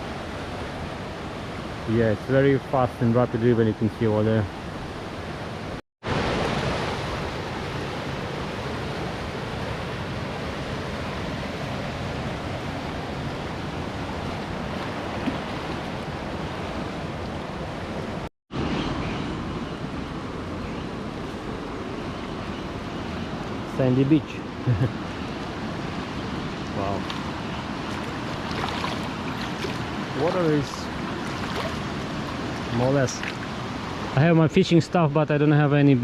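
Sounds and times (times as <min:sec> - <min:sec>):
river rapids rushing: 0:26.0 - 0:34.3.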